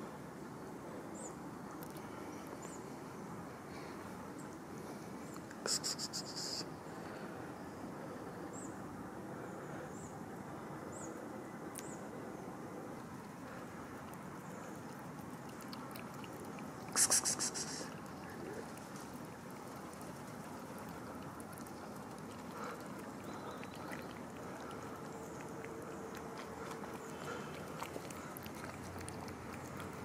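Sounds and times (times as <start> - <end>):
outdoor background hum: 0.0 - 30.0.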